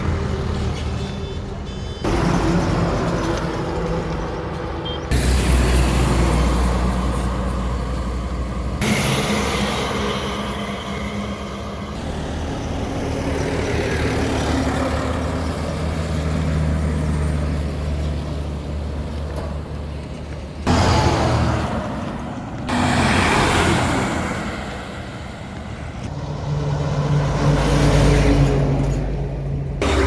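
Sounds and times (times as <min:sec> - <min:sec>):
diesel truck engine drone: 0:00.0 - 0:30.0
tyre and road noise: 0:00.0 - 0:30.0.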